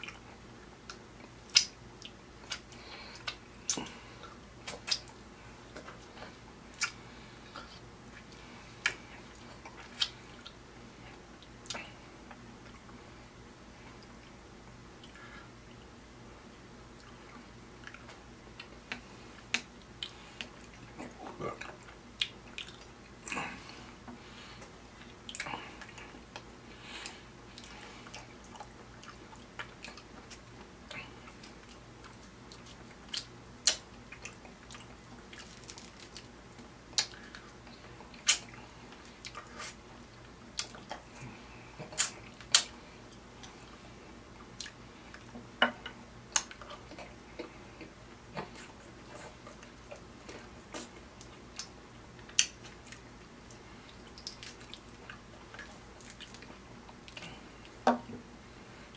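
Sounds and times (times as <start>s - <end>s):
sharp lip smacks: 1.5s - 3.9s, 4.6s - 5.1s, 33.1s - 33.8s, 38.2s - 38.5s, 41.8s - 42.7s
wet chewing: 17.0s - 43.8s, 44.5s - 57.8s.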